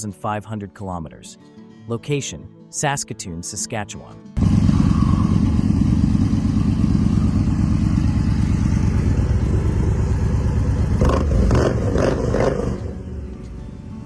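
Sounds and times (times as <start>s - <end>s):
motorcycle engine running and revving: 4.4s - 14.0s.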